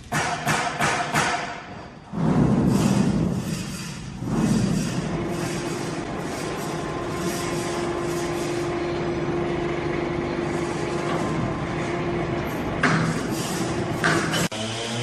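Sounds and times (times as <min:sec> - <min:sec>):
sawmill machinery running: 0:02.4 - 0:15.0.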